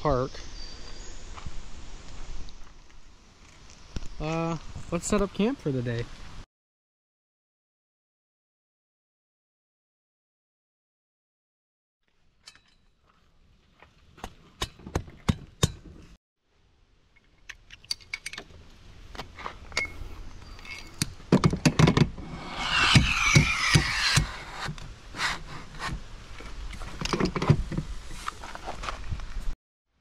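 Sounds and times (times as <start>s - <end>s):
camp gear clicking and knocking: 14.2s - 16.1s, 20.8s - 22.1s, 25.8s - 27.9s
scraping: 22.1s - 26.0s.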